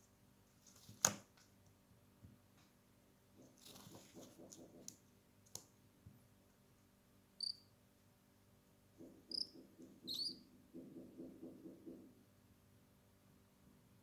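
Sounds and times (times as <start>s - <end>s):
cockatiel chirping: 7.4s - 7.7s, 9.3s - 10.5s.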